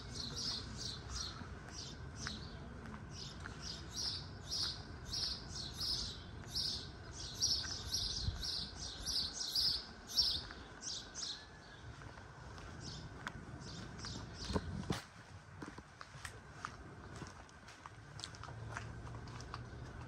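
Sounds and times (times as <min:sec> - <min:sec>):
small bird chirping: 0:03.2 - 0:11.5.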